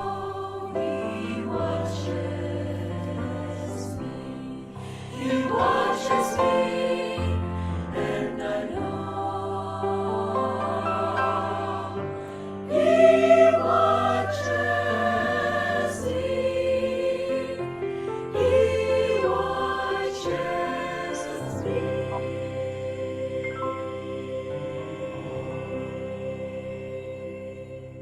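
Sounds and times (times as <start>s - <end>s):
choir singing a hymn: 0.0s - 28.0s.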